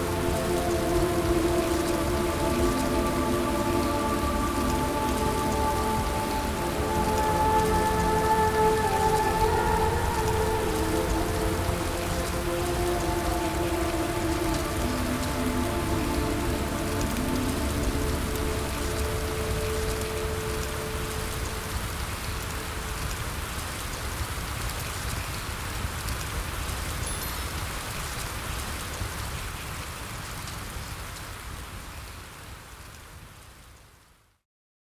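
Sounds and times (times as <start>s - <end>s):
soft sustained music tones: 0.0s - 25.4s
steady rain: 0.0s - 34.4s.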